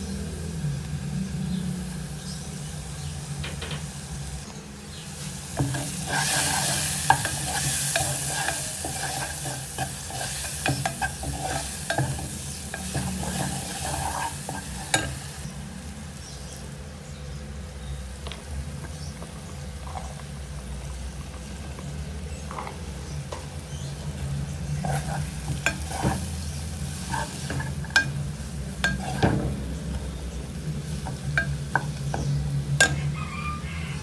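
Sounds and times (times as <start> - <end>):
eggplant sizzling in a pan: 0.0 - 34.0
steady low hum: 0.0 - 34.0
utensil scraping a pan: 5.2 - 15.4, 24.7 - 34.0.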